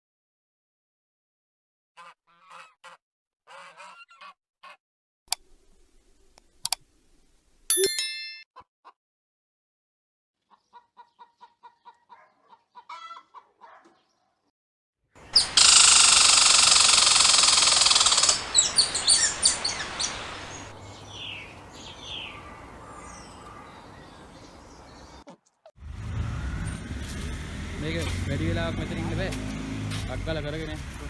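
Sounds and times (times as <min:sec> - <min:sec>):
chickens clucking: 0:10.4 - 0:14.0
chicken harsh outburst: 0:10.7 - 0:13.8.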